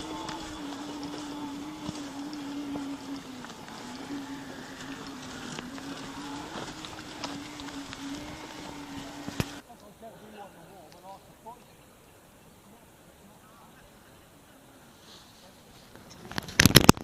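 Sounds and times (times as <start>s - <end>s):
electric motor whining: 0.0s - 9.6s.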